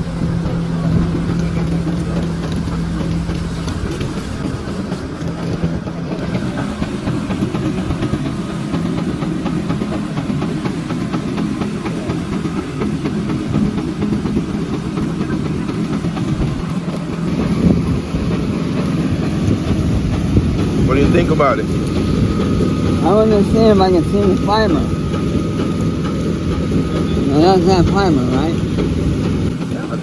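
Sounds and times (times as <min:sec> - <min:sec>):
truck diesel engine running: 0:00.0 - 0:30.0.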